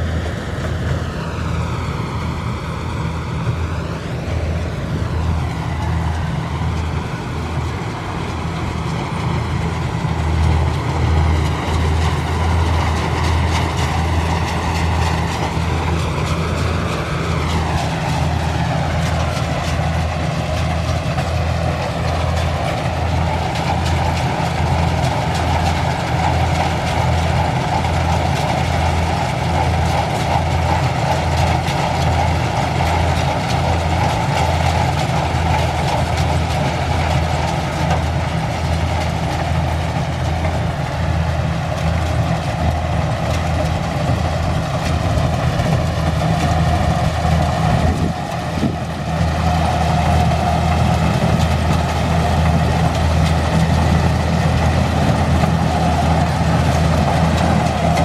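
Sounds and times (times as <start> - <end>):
combine harvester engine running: 0.0 - 58.0.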